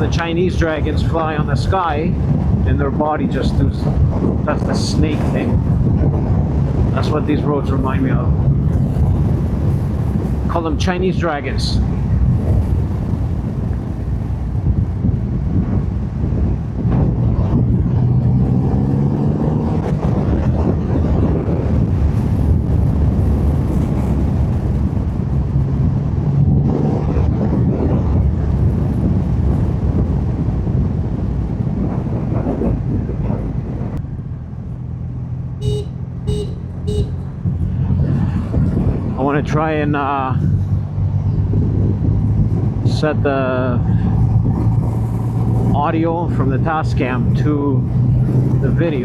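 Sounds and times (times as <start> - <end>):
motorcycle horn toots: 35.6 - 37.3.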